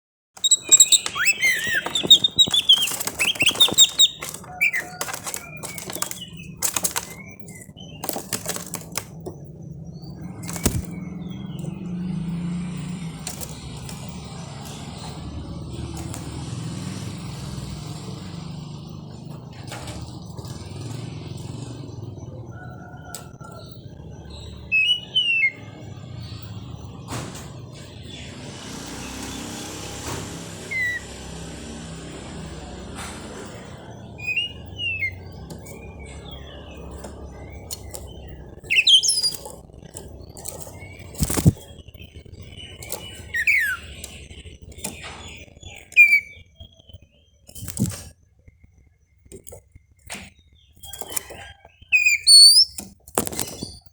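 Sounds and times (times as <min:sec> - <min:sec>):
bird whistling: 0:00.4 - 0:08.0, 0:34.2 - 0:35.2, 0:38.6 - 0:39.4, 0:42.6 - 0:44.1, 0:45.0 - 0:46.4, 0:50.9 - 0:52.8
loud rustling: 0:00.4 - 0:09.5, 0:36.8 - 0:45.0
small engine running: 0:00.4 - 0:22.8, 0:28.0 - 0:41.9.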